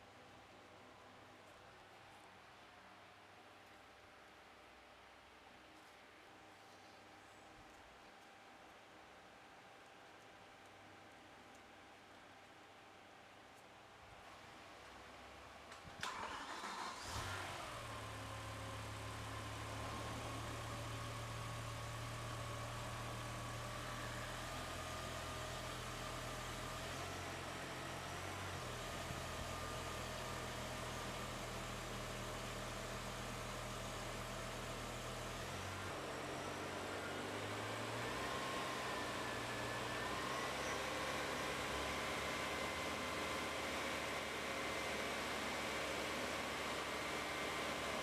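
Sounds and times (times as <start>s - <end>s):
car engine starting and idling: 15.9s - 48.0s.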